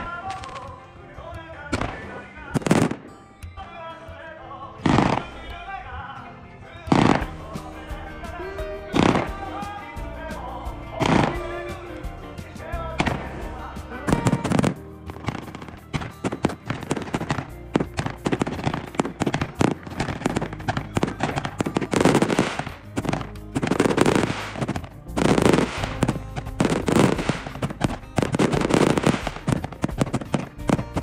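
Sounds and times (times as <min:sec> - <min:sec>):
fireworks crackling bangs: 0:00.0 - 0:00.8, 0:01.7 - 0:03.2, 0:06.9 - 0:31.0
background music: 0:00.0 - 0:31.0.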